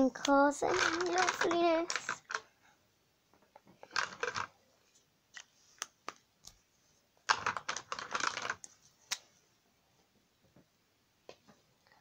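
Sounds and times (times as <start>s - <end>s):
pens tapping and clicking: 0.7s - 2.5s, 3.8s - 4.5s, 7.3s - 8.7s.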